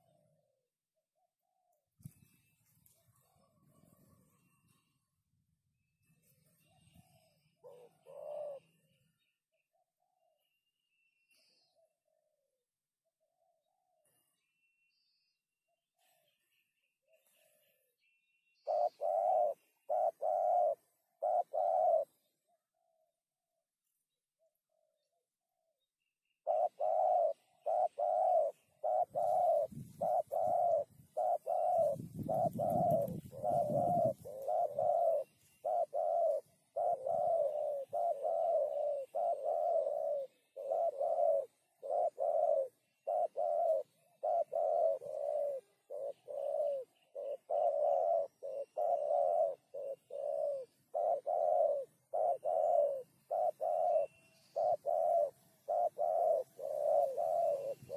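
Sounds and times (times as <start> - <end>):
dove cooing: 0.0 - 0.5, 6.6 - 9.1, 18.6 - 23.1, 26.4 - 57.9.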